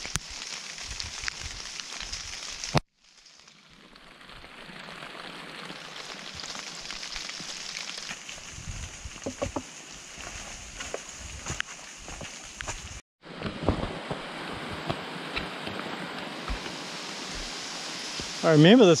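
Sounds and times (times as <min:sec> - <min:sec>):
heavy rain on bushes: 0:00.0 - 0:10.0, 0:14.0 - 0:19.0.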